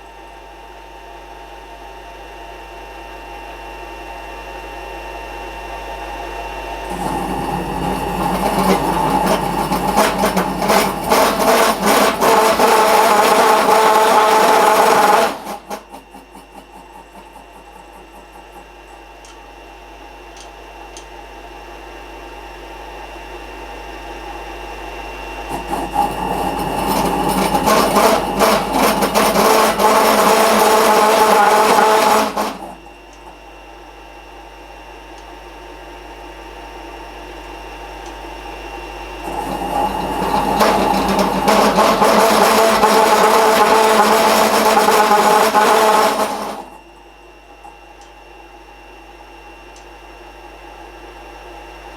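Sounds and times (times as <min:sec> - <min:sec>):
workshop machine humming: 0:00.0 - 0:51.9
loud rough machine working noise: 0:06.0 - 0:19.7, 0:24.7 - 0:33.5, 0:38.4 - 0:47.0.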